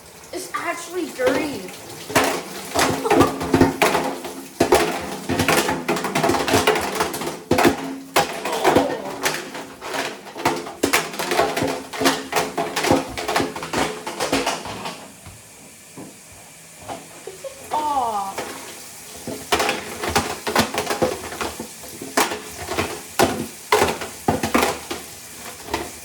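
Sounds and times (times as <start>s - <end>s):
calculators clattering in washer drum: 0.0s - 26.0s.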